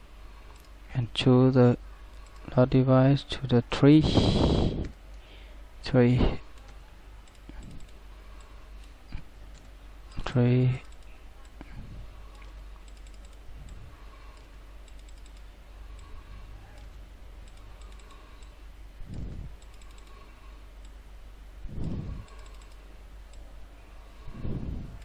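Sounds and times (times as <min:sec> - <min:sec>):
steady low hum: 0:00.0 - 0:25.0
keyboard typing: 0:06.5 - 0:10.2, 0:12.3 - 0:20.2, 0:21.8 - 0:23.4
mouse clicks: 0:21.8 - 0:23.4.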